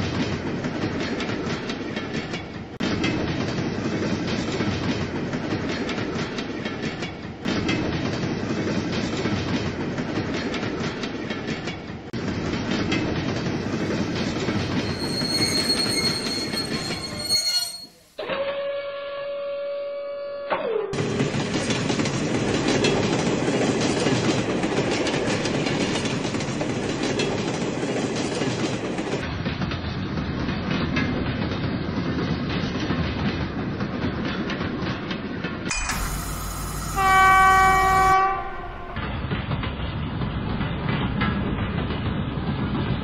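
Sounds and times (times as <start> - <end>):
train rolling and rattling: 0.0 - 18.1, 21.0 - 43.0
high-pitched squeal: 14.2 - 18.1, 35.7 - 39.1
train horn: 18.3 - 20.5, 35.8 - 39.1.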